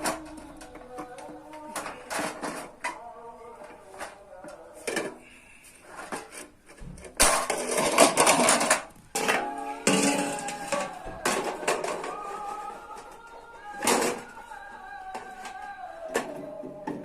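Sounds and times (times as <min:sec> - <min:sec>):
metal bread pan clattering: 0:07.1 - 0:12.2.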